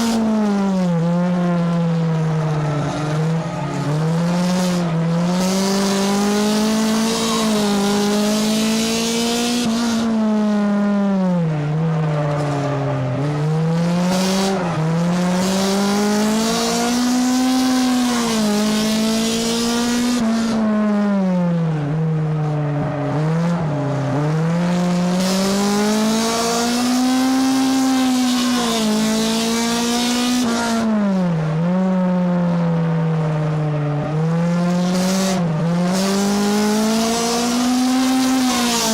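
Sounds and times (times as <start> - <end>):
race car engine revving: 0.0 - 38.9
wind and tyre noise: 0.0 - 38.9.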